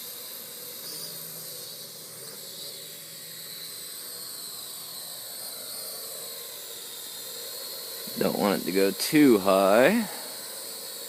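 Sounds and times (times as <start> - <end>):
quadcopter drone hovering whine: 0.0 - 11.0.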